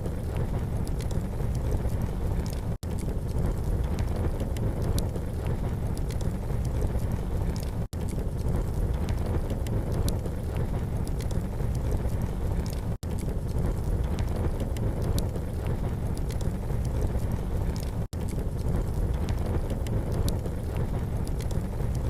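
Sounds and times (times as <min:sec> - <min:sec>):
campfire crackling and popping: 0:00.0 - 0:22.0
steady low rumble: 0:00.0 - 0:22.0.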